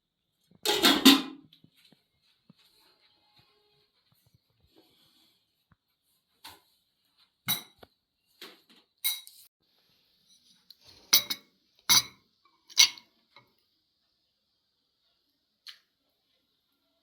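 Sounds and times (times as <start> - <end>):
cutlery clinking against dishes: 11.1 - 13.1.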